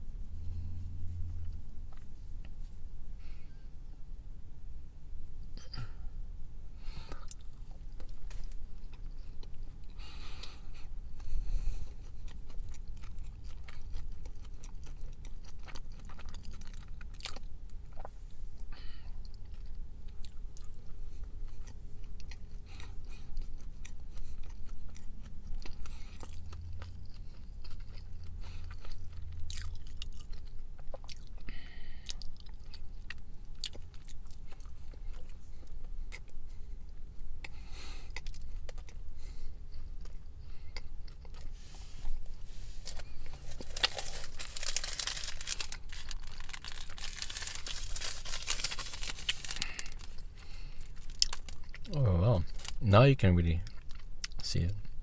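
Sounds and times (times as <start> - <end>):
person chewing: 0.4 - 2.6, 6.9 - 52.8, 53.6 - 55.0.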